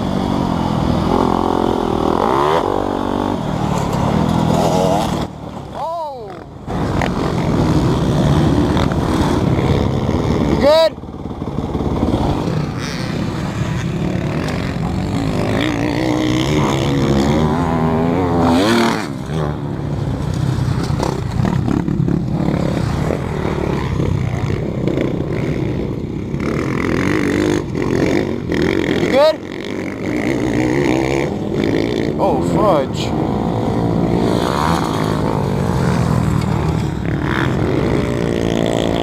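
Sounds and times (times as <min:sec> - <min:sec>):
dirt bike engine revving: 0:00.0 - 0:39.0
knocks and scrapes: 0:03.6 - 0:05.6.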